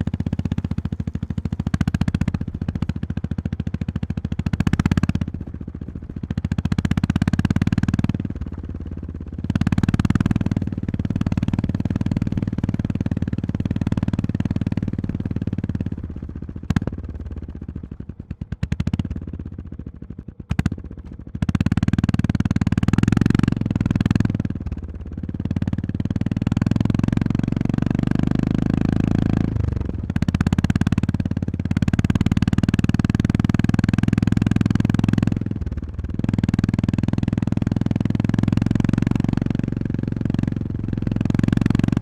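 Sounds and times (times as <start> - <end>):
motorcycle engine revving: 0.0 - 5.4, 9.4 - 16.0, 21.5 - 42.0.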